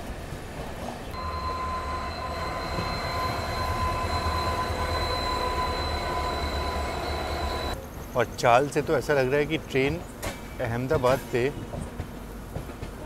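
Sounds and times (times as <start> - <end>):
train low rumble: 0.0 - 13.0
high squeal from running gear: 1.2 - 7.8.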